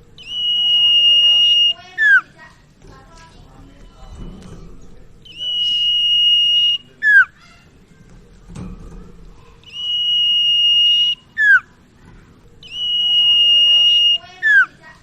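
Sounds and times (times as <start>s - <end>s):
bird singing high whistle: 0.2s - 2.2s, 5.2s - 7.4s, 9.6s - 11.7s, 12.6s - 14.8s.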